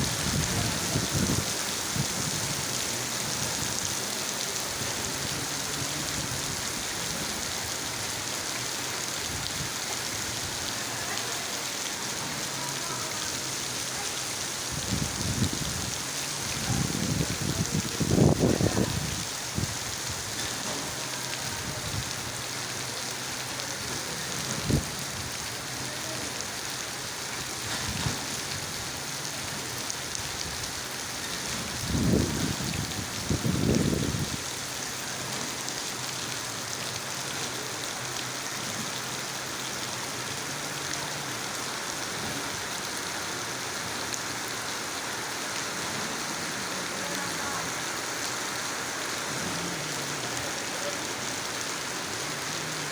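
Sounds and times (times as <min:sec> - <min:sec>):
rain falling: 0:00.0 - 0:52.9.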